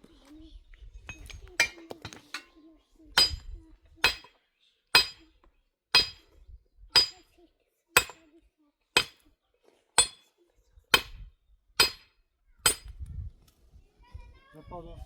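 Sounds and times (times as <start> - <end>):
stone struck with ringing clinks: 1.1 - 2.5, 3.2 - 4.4, 5.0 - 5.3, 6.0 - 6.3, 7.0 - 7.2, 8.0 - 8.2, 10.0 - 10.3.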